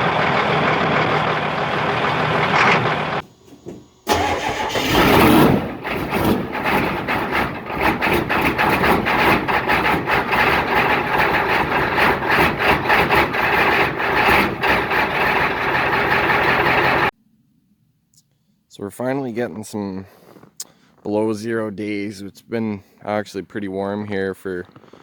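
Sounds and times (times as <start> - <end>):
engine running unevenly: 0.0 - 17.1.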